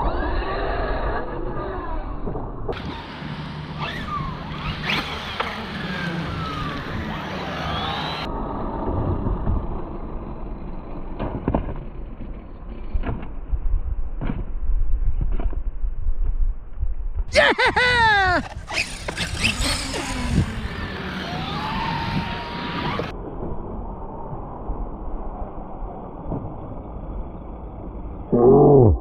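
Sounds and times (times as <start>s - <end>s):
electric rc truck motors whining: 0.0s - 13.4s, 18.3s - 23.2s, 24.7s - 28.3s
low rumble: 8.2s - 17.3s, 23.1s - 29.0s.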